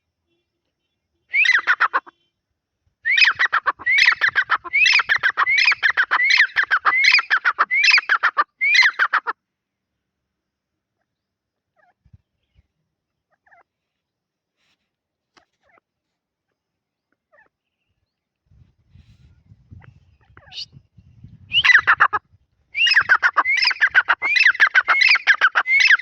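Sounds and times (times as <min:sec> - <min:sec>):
partridge calling: 0:01.3 - 0:02.1, 0:03.1 - 0:09.4, 0:11.0 - 0:13.7, 0:17.1 - 0:17.6, 0:19.7 - 0:20.9, 0:21.5 - 0:26.0.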